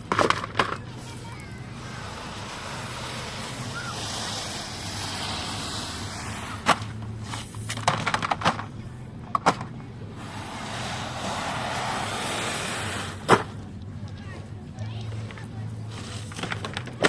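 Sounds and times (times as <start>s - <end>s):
surf washing over pebbles: 0.9s - 7.7s, 10.2s - 13.5s.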